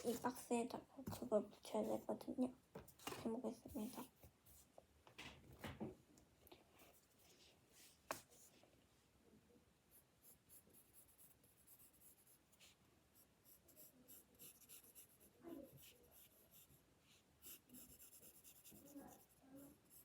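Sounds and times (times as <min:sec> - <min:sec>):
drawing tool scratching paper: 0:13.4 - 0:16.8, 0:17.4 - 0:20.0.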